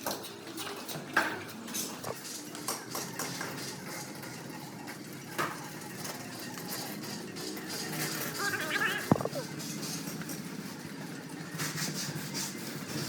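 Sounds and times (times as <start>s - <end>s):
hard objects clinking and knocking: 8.2s - 9.4s.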